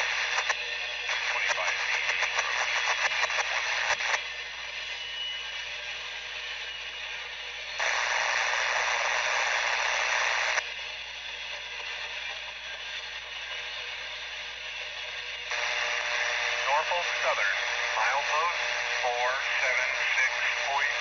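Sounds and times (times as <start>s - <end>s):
scanner radio static hiss: 0.0s - 4.3s, 7.8s - 10.6s, 15.5s - 21.0s
loud burst of static: 7.8s - 10.6s, 15.5s - 21.0s.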